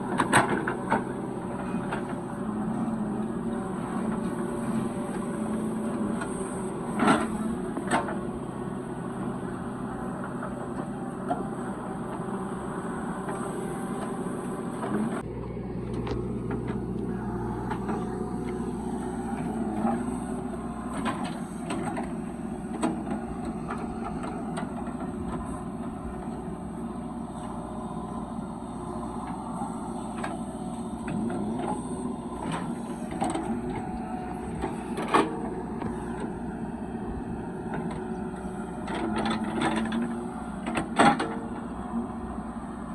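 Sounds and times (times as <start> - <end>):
heavy machinery diesel engines: 0.0 - 42.9.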